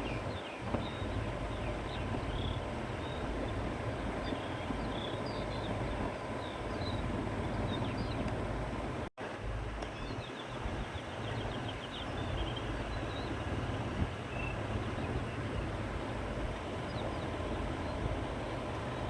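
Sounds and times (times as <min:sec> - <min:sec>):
wind blowing with low rumble: 0:00.0 - 0:19.0
small birds chirping faintly: 0:09.7 - 0:19.0.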